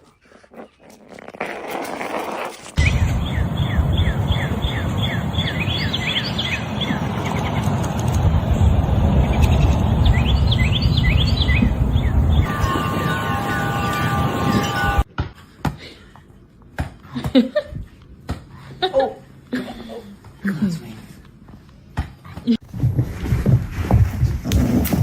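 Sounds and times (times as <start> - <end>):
small birds chirping: 2.8 - 12.5
loud low rumble: 2.8 - 15.0.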